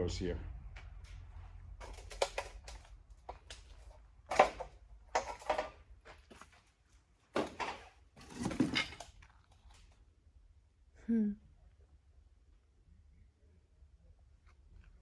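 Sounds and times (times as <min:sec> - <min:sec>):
knocks and scuffs of handling things: 0:00.8 - 0:09.1.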